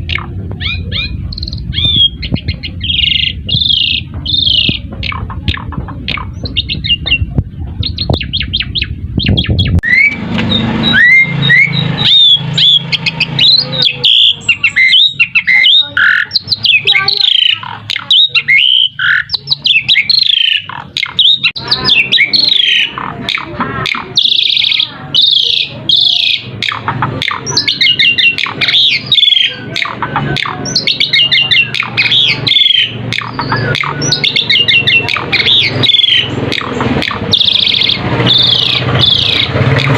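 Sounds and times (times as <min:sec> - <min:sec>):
low rumble: 0:00.0 - 0:13.8
starling singing varied song: 0:00.0 - 0:39.9.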